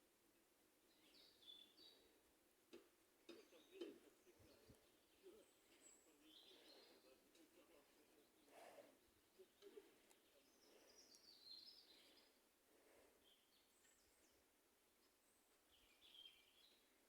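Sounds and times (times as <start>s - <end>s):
faint bird chirps and trills: 0.8s - 2.3s, 3.3s - 12.5s, 13.1s - 17.0s.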